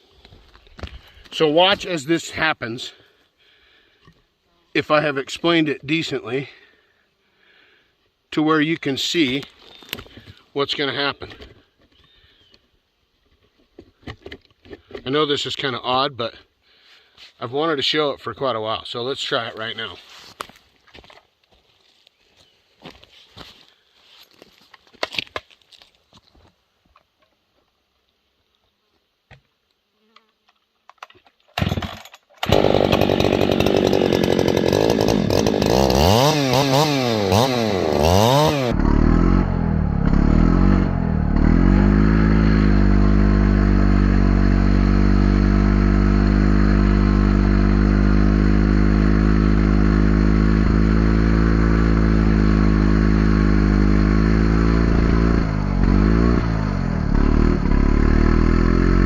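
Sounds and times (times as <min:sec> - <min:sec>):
chainsaw revving and cutting: 0:31.6 - 0:59.0.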